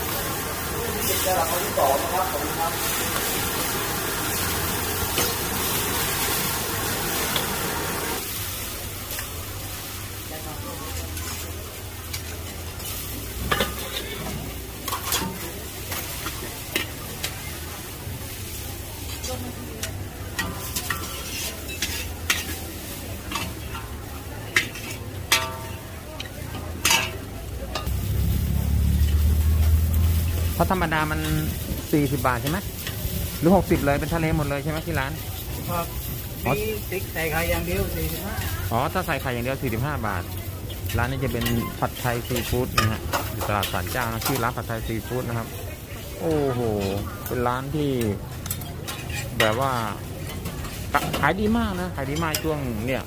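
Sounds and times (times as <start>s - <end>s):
food sizzling in a wok: 0.0s - 53.0s
metal spatula scraping a pan: 11.0s - 17.6s, 20.2s - 25.9s, 48.0s - 51.4s
low rumble: 27.9s - 30.7s.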